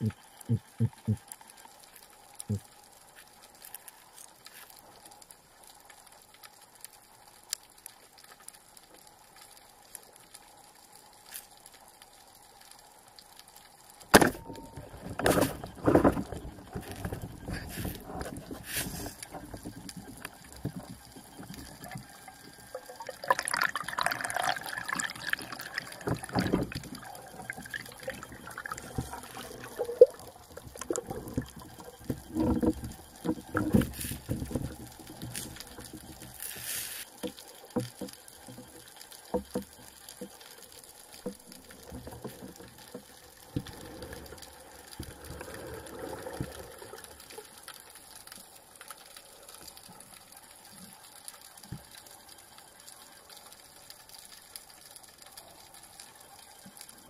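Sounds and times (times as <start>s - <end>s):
faint ticks: 0.0s - 57.0s
water sloshing and gurgling: 14.2s - 40.4s, 41.1s - 47.8s.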